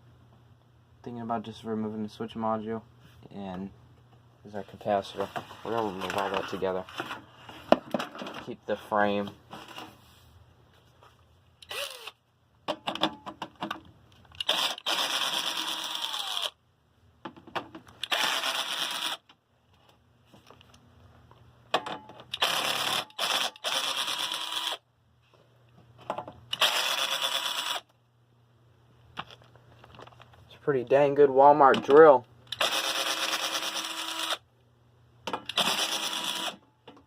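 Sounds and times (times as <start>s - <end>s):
cordless drill whirring: 11.6s - 12.2s, 14.4s - 16.6s, 18.0s - 19.2s, 22.4s - 24.8s, 26.5s - 27.8s, 32.5s - 34.4s, 35.5s - 36.6s.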